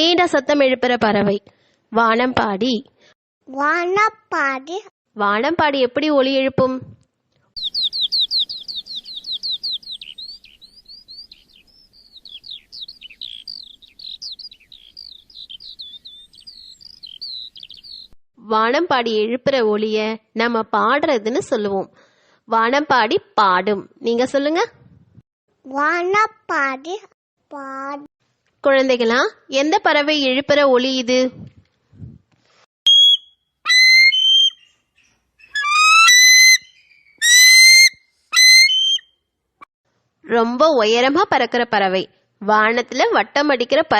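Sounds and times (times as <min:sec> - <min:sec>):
skylark song: 0:07.6 - 0:18.2, 0:32.9 - 0:34.8, 0:35.4 - 0:39.0
eagle screaming: 0:32.9 - 0:34.7, 0:35.4 - 0:39.0.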